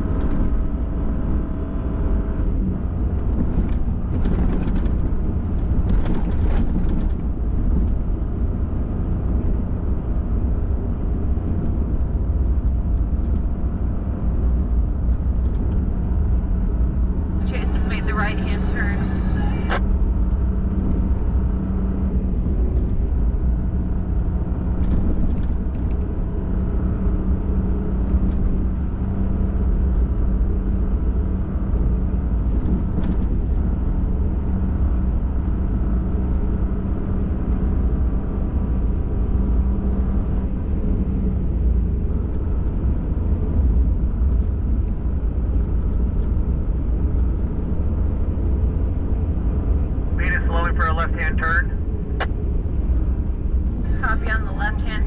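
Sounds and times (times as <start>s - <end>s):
engine and tyre rumble: 0.0s - 55.0s
low drone: 17.2s - 20.1s.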